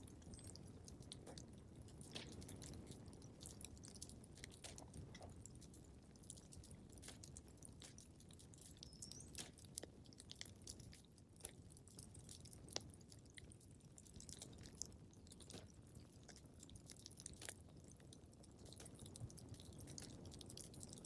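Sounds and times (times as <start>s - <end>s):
wood fire crackling faintly: 0.0s - 21.0s.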